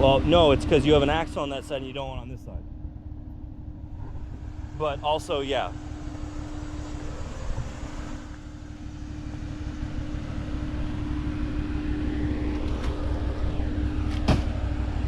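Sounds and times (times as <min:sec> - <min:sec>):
buggy engine running: 0:00.0 - 0:15.0.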